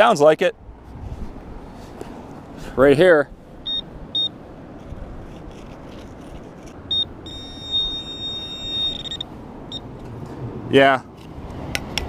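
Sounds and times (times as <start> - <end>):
metal detector beeping: 3.6 - 4.4, 6.8 - 9.9.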